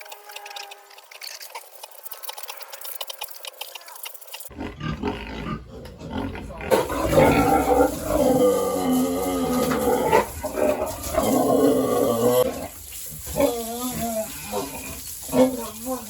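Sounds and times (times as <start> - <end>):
scratchy clicking and rustling: 0.0 - 4.5
pigs grunting and squealing: 0.0 - 16.0.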